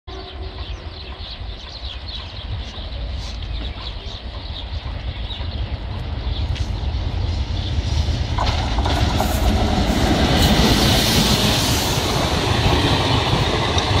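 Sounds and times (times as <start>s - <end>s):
birds chirping: 0.1s - 8.5s
low train rumble: 0.1s - 14.0s.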